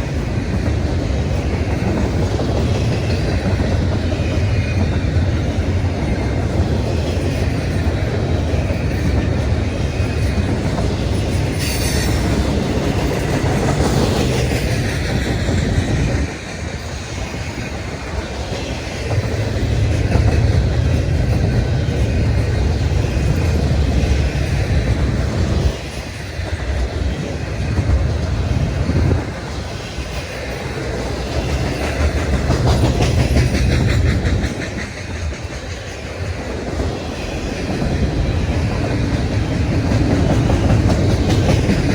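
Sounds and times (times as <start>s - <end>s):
train wheels clacking over rail joints: 0.0s - 41.9s
high wheel squeal: 11.4s - 13.1s.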